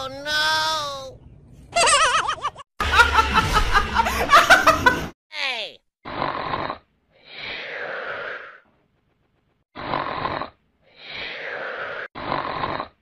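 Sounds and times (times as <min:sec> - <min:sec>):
person snoring: 0:06.1 - 0:08.7, 0:09.8 - 0:13.0.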